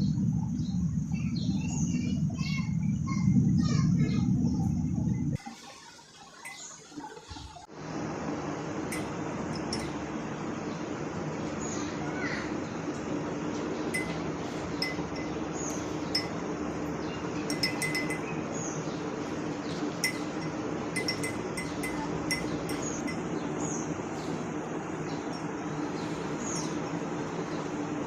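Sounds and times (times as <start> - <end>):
steady low hum: 0.0 - 5.6, 7.7 - 28.0
light clinks: 8.9 - 10.0, 14.0 - 16.4, 17.5 - 18.3, 20.0 - 23.3.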